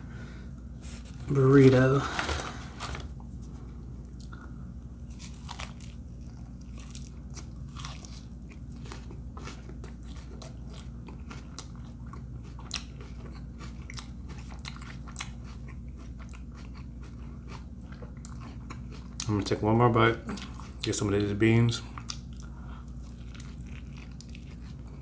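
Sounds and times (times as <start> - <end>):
low steady hum: 0.0 - 25.0
person chewing crunchy food: 4.0 - 19.6, 20.2 - 20.9, 21.8 - 25.0.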